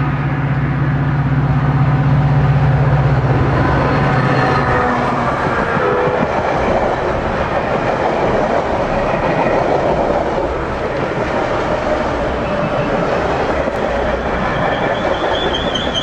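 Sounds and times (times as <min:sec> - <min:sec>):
train passing at speed: 0:00.0 - 0:16.0
wheels clacking over rail joints: 0:05.5 - 0:16.0.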